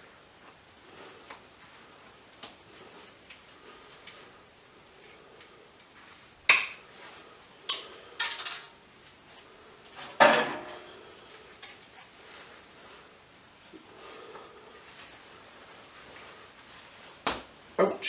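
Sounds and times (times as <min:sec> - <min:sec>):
scrap metal clanking: 0:10.0 - 0:12.1.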